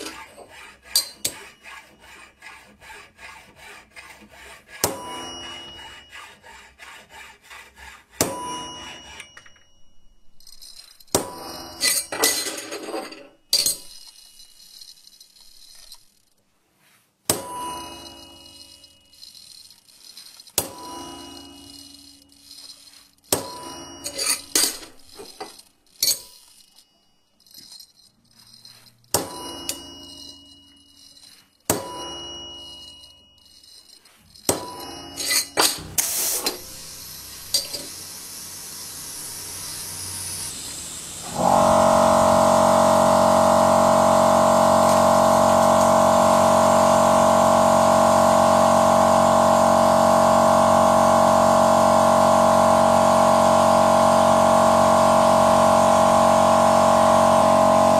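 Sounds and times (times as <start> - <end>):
sharp metallic knocks and clanks: 0.0 - 2.3, 4.7 - 6.5, 8.1 - 9.8, 10.5 - 14.5, 17.3 - 26.8, 29.0 - 36.8
steady machine drone: 36.8 - 57.9.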